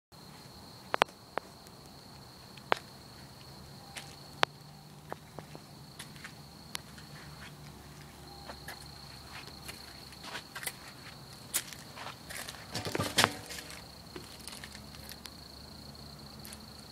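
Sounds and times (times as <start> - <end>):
insects trilling: 0.2 - 16.9
footsteps: 2.2 - 15.3.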